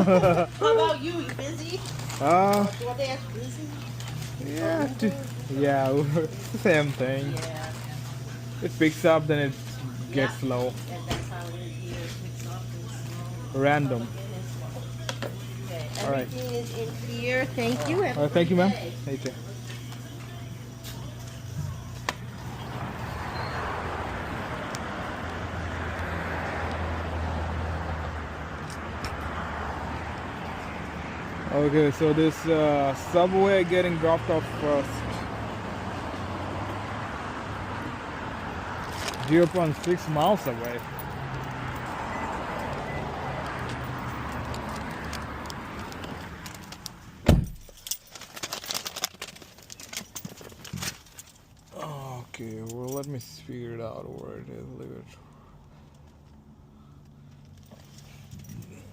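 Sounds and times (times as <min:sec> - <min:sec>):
road vehicle hum: 0:00.0 - 0:58.9
rushing road noise: 0:19.2 - 0:47.8
keys jangling: 0:45.8 - 0:51.8, 0:52.5 - 0:53.3, 0:57.3 - 0:58.9
car door shutting: 0:47.2 - 0:47.8.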